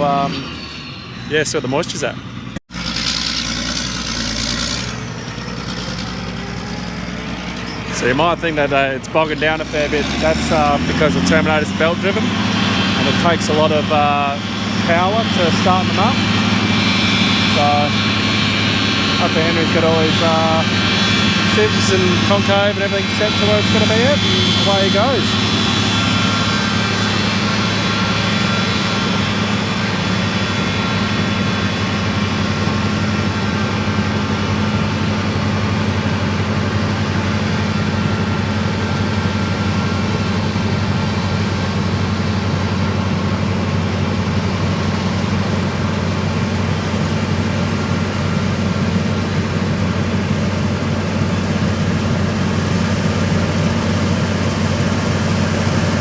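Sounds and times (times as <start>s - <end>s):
combine harvester machinery drone: 0.0s - 56.0s.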